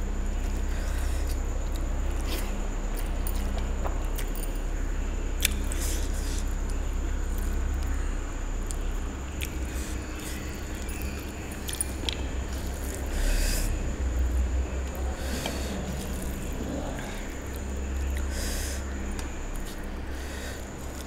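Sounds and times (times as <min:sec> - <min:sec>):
steady low hum: 0:00.0 - 0:21.0
person chewing food: 0:05.4 - 0:07.9, 0:08.6 - 0:21.0.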